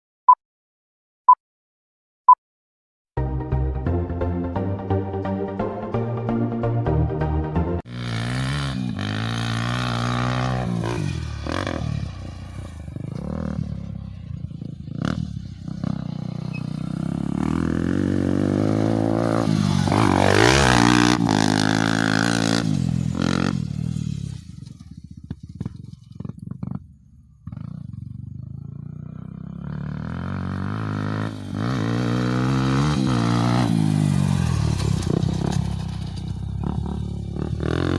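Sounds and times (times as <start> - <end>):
motorbike engine revving: 7.8 - 37.9.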